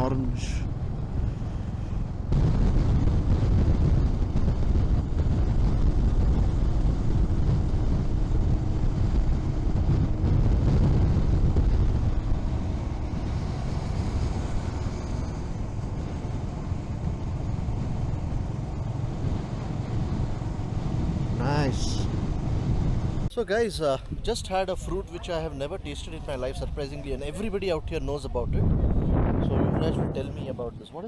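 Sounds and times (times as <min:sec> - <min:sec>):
motorcycle engine cruising: 0:00.0 - 0:23.3.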